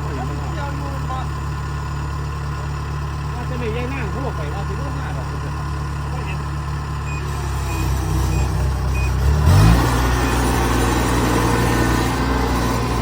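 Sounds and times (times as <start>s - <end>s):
diesel engine revving: 0.0s - 13.0s
reverse warning beeper: 7.0s - 10.5s.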